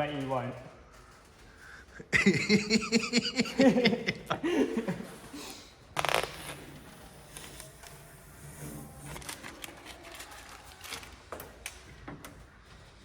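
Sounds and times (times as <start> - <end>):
man chuckling: 2.0 - 5.6.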